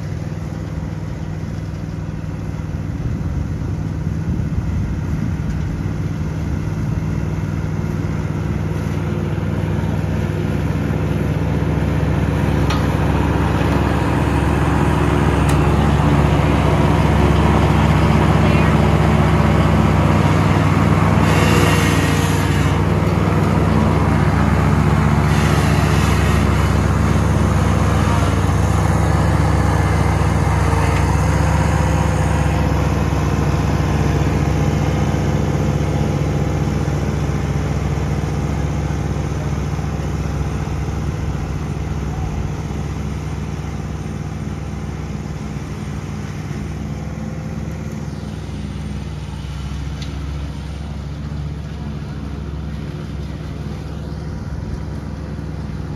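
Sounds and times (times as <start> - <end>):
lawn mower engine running: 0.0 - 55.9.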